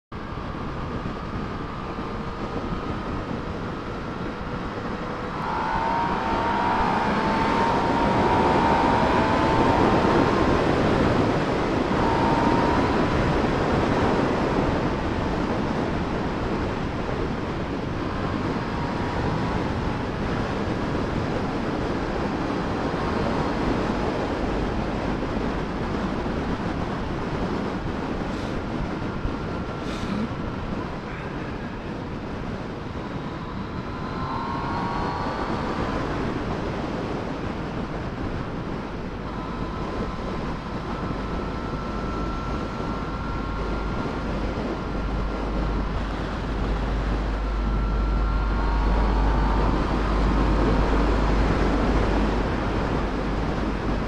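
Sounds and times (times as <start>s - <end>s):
wind rush over microphone: 0.1s - 54.0s
motorcycle engine accelerating: 1.2s - 27.5s.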